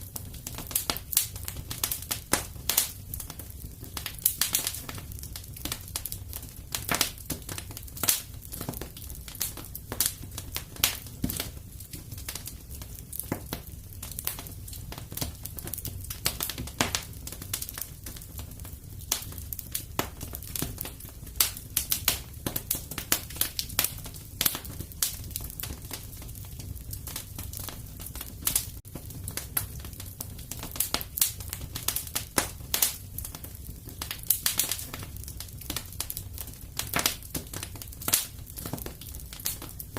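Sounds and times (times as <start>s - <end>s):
low steady fire rumble: 0.0s - 39.9s
wood fire crackling and popping: 0.0s - 39.9s.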